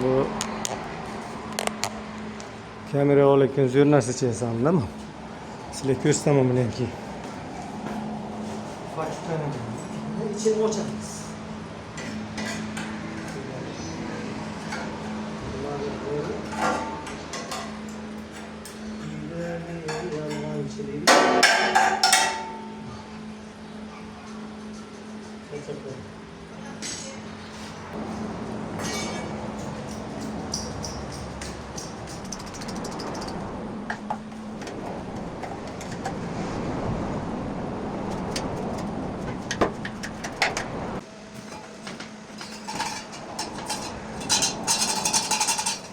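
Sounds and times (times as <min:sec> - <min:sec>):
hammer striking sheet metal: 0:21.1 - 0:22.8
metallic ring: 0:21.1 - 0:23.1, 0:28.8 - 0:33.4, 0:42.4 - 0:45.9.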